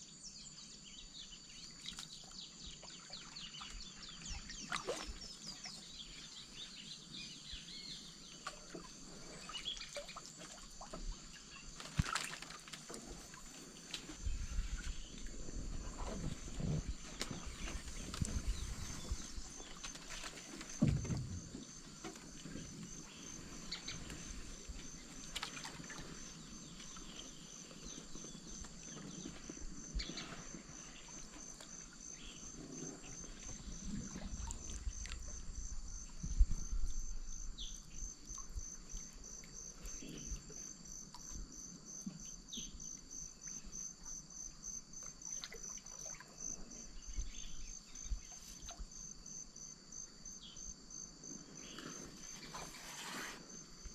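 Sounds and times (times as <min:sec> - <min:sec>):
paddle splashing water: 0:01.8 - 0:35.5, 0:51.9 - 0:53.9
insects trilling: 0:04.0 - 0:53.9
short insect calls: 0:16.0 - 0:53.9
canoe paddle thuds: 0:16.2 - 0:22.7.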